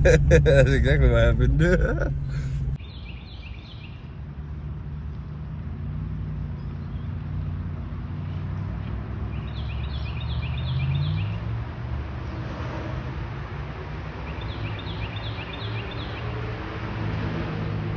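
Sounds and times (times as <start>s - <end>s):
low exhaust drone: 0.0s - 2.8s.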